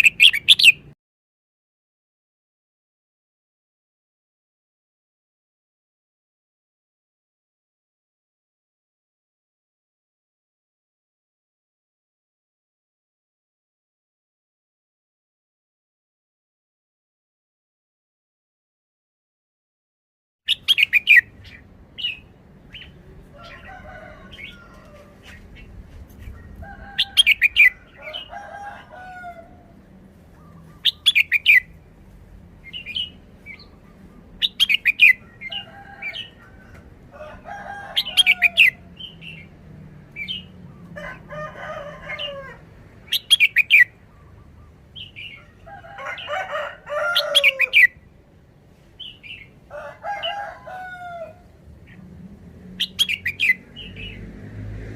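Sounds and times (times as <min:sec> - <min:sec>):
bulbul singing warbled phrases: 0:00.0 - 0:00.9, 0:20.5 - 0:23.7, 0:30.4 - 0:31.8, 0:32.6 - 0:36.4
sharp high bird chirps: 0:00.0 - 0:01.0, 0:20.5 - 0:23.0, 0:30.8 - 0:31.7.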